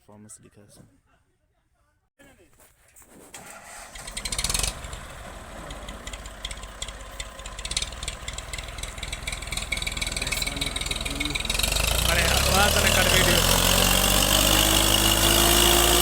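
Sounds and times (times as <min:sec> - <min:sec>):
tractor engine running: 0:03.3 - 0:16.0.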